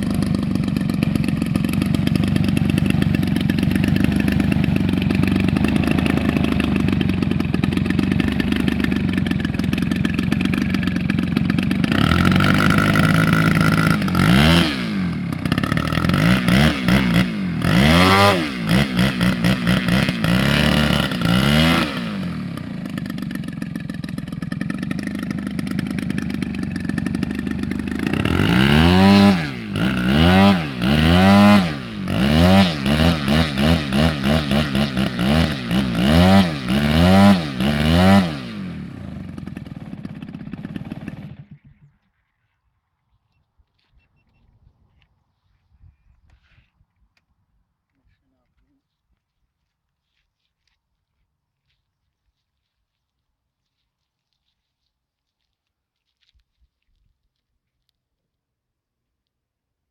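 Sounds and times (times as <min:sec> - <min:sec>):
engine revving: 0:00.0 - 0:41.6.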